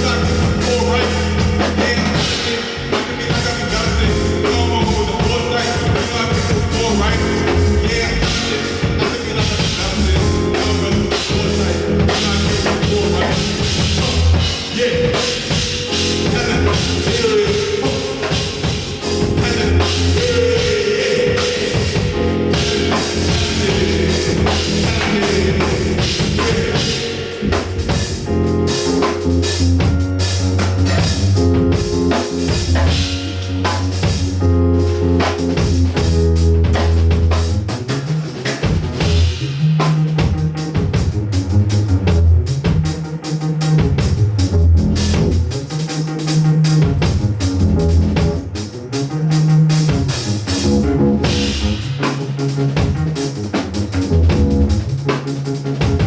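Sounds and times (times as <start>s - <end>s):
person singing: 0.0s - 29.3s
drum kit beat: 0.0s - 56.0s
live rock band: 0.0s - 56.0s.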